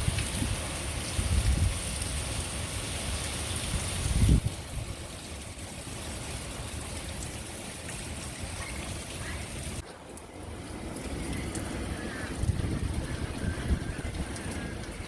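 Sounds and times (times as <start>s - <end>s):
wind buffeting microphone: 0.0s - 2.3s, 3.6s - 5.0s, 11.0s - 15.0s
hiss of rain: 0.0s - 15.0s.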